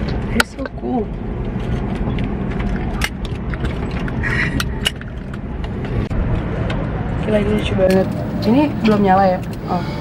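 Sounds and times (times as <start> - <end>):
helicopter cabin hum: 7.6 - 10.0.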